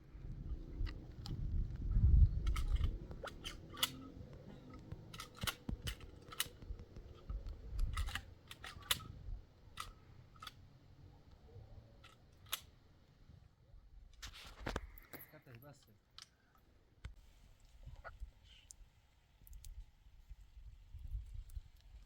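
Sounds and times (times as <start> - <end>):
low rumble: 0.0 - 9.6
sharp clicks and snaps: 2.4 - 9.2, 19.4 - 19.8.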